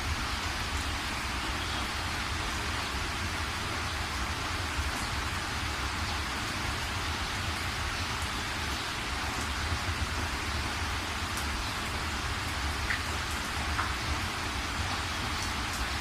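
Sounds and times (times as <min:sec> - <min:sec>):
steady rain hissing: 0:00.0 - 0:16.0
faint raindrop ticks: 0:12.8 - 0:14.1.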